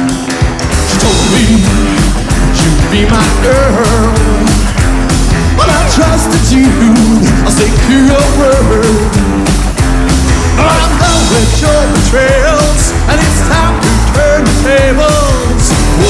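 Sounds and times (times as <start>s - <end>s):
drums beating: 0.0s - 16.0s
rockabilly band playing: 0.0s - 16.0s.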